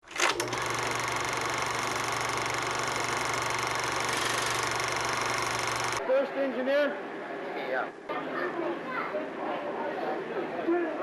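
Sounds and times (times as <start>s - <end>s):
machinery running with fast pulse: 0.4s - 6.0s.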